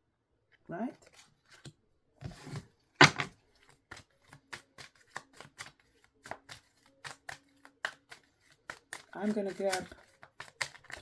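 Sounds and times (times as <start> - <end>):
cards being shuffled by hand: 2.3 - 11.0.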